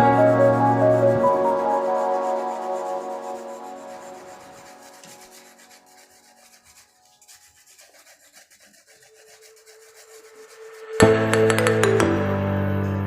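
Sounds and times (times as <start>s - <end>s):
background music: 0.0s - 6.1s, 9.1s - 13.0s
pencil rubbing on paper: 0.0s - 11.0s.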